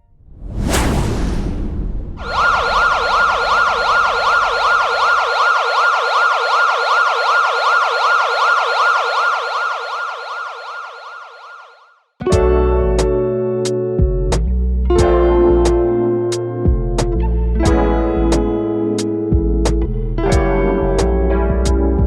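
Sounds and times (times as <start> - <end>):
siren wailing up and down: 2.2 - 12.0.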